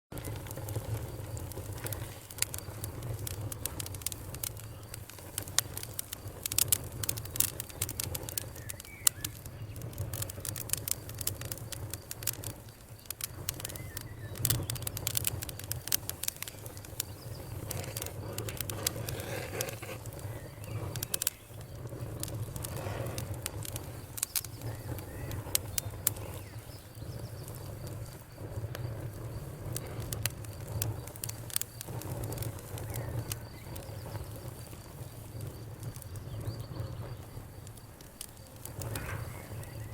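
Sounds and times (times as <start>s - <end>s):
wood fire crackling: 0.1s - 39.9s.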